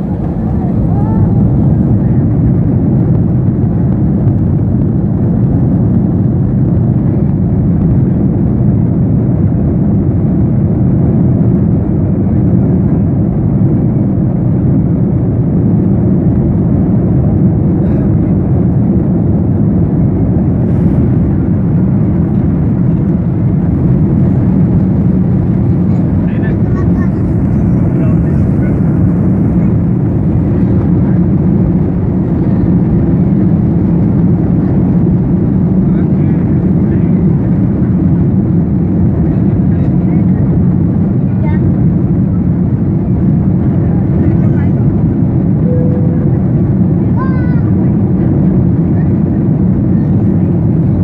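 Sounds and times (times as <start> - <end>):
jet engines roaring: 0.0 - 3.6, 18.4 - 35.9, 44.8 - 49.9.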